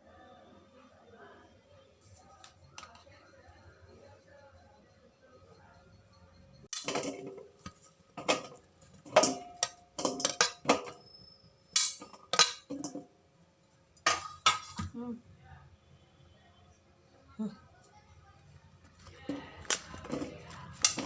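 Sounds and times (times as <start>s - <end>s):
dishes and cutlery clattering: 6.7s - 11.0s, 11.8s - 13.1s, 14.0s - 14.9s, 19.2s - 21.0s.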